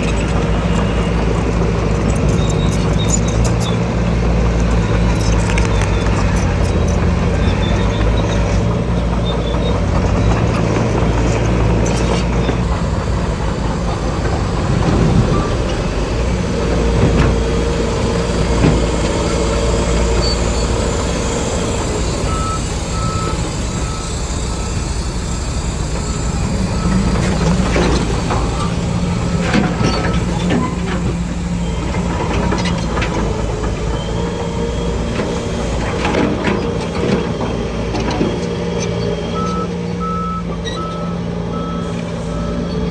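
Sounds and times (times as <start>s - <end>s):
heavy machinery diesel engines: 0.0s - 42.9s
reversing beeper short beeps: 22.0s - 30.2s, 39.3s - 42.8s.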